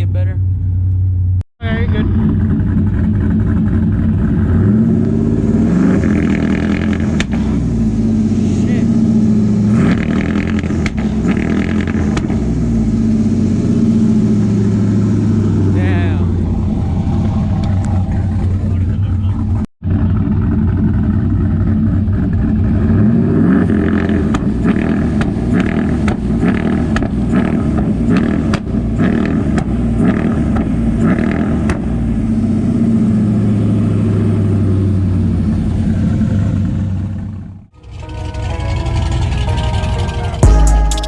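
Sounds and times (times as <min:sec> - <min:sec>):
truck engine on launch limiter: 0:01.1 - 0:41.0
exhaust pops and bangs: 0:06.0 - 0:08.7, 0:09.8 - 0:12.8, 0:24.0 - 0:32.1
music: 0:37.8 - 0:41.0.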